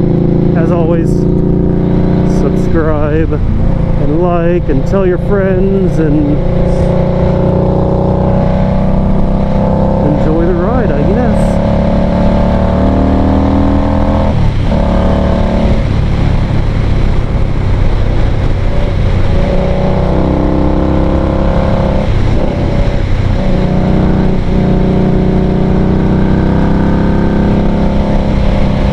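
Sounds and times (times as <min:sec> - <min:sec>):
motorcycle engine running: 0:00.0 - 0:28.9
steady rushing noise: 0:00.0 - 0:28.9.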